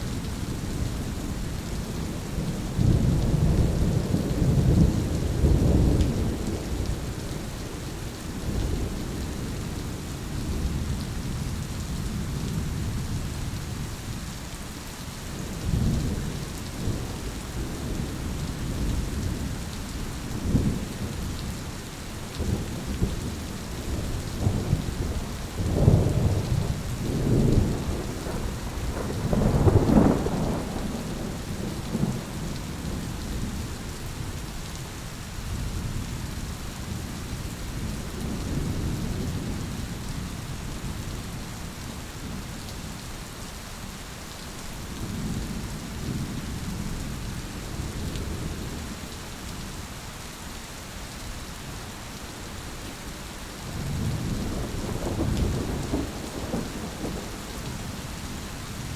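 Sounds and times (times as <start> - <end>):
steady rain falling: 0.0 - 58.9
rolling thunder: 22.4 - 33.6, 53.7 - 58.9.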